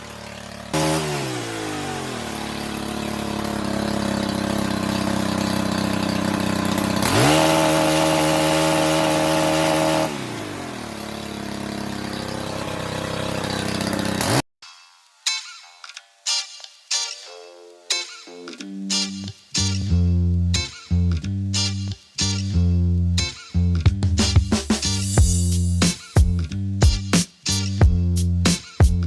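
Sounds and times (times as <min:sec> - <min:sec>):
two-stroke pole saw engine revving: 0:00.0 - 0:14.5.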